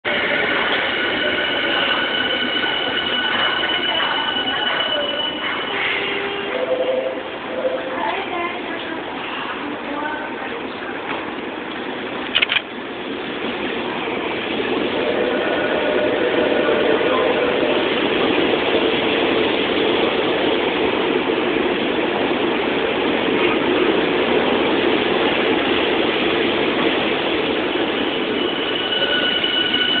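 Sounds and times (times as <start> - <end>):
train wheels rumbling on rail: 0.0 - 6.6, 7.2 - 30.0
faint high steady tones: 0.1 - 8.7, 27.2 - 30.0.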